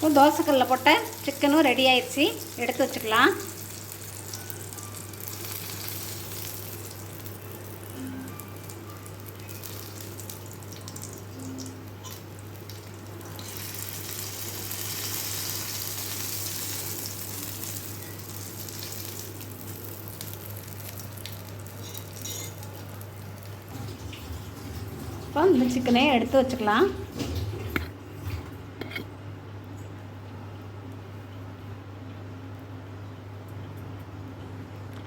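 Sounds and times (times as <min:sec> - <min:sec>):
chicken frying in oil: 0:00.0 - 0:27.9.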